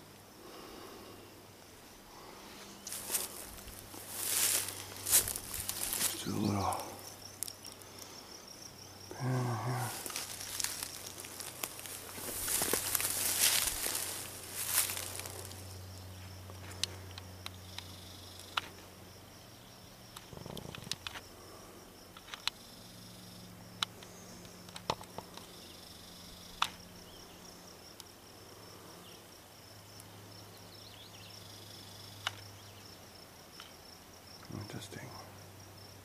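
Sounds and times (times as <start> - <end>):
faint low hum: 0.0 - 36.0
insects chirring: 0.0 - 36.0
grass rustle: 1.7 - 8.5, 9.1 - 18.9.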